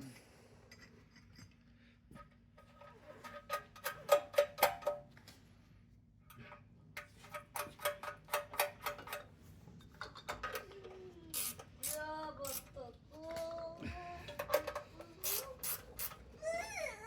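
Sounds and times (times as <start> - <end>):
child whining: 10.6 - 11.4, 13.2 - 15.7, 16.3 - 17.0.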